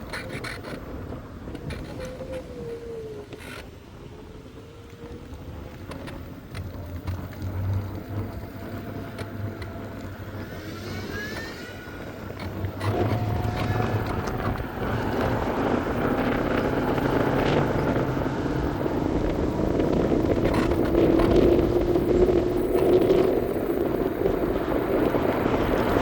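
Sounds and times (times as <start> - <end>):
electric scooter hum: 0.0 - 26.0
wind and road noise: 0.0 - 26.0
rising whine: 7.1 - 26.0.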